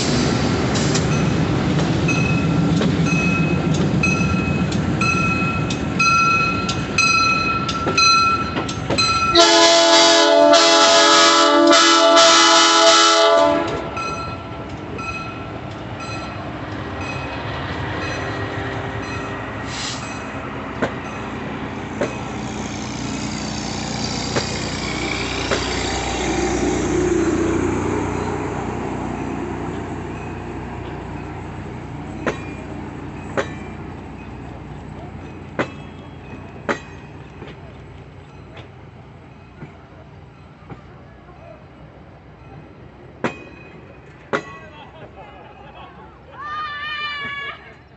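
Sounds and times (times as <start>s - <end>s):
train wheels clicking over rail joints: 0.0s - 9.4s, 13.5s - 46.0s
passing train rumble: 0.0s - 47.9s
train air horn blast: 9.3s - 14.0s.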